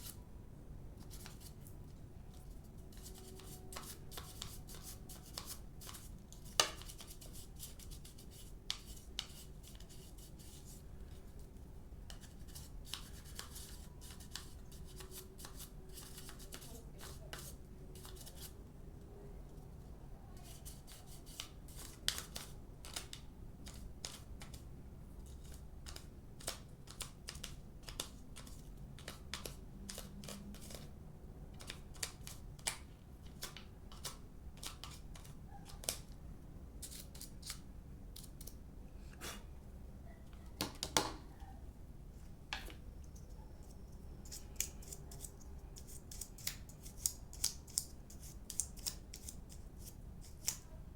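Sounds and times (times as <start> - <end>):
faint low hum: 0.0 - 50.9
small sharp clicks and snips: 44.3 - 47.9.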